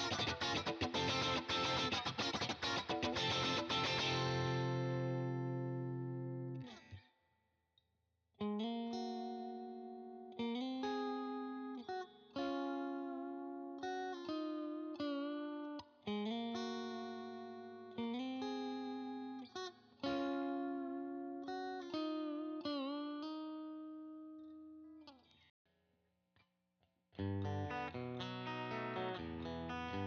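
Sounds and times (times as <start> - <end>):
electric guitar with crunch tone: 0.0 - 6.8, 27.2 - 30.0.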